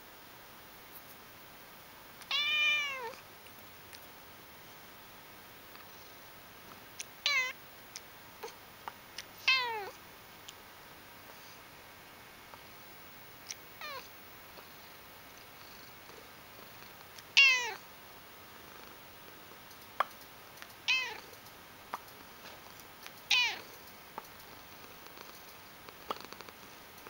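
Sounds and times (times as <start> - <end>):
cat meowing: 2.3 - 3.2, 7.2 - 7.6, 9.4 - 9.9, 13.8 - 14.0, 17.4 - 17.8, 20.9 - 21.2, 23.3 - 23.6.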